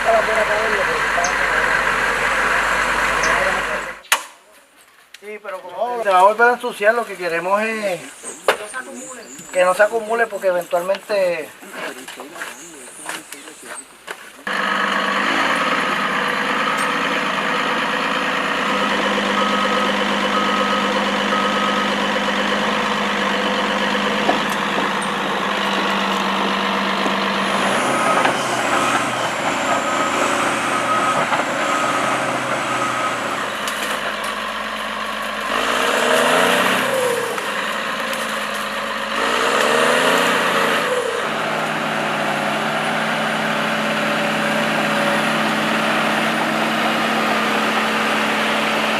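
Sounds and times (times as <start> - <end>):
heavy machine engine running: 0.0 - 4.0, 14.5 - 48.9.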